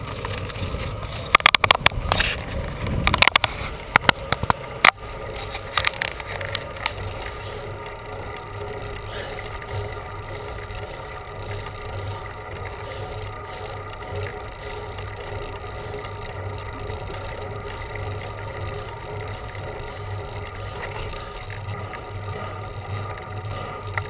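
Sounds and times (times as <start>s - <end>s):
sharp clicks and knocks: 0.0s - 9.9s
bicycle riding noise: 0.0s - 24.0s.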